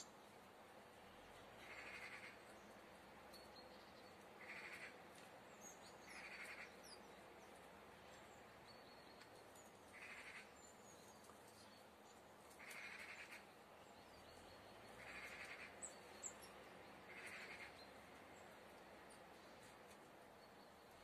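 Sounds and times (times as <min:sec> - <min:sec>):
small songbirds chirping: 0:00.0 - 0:21.0
harsh bird calls: 0:01.6 - 0:02.4, 0:14.9 - 0:16.4, 0:17.0 - 0:17.9.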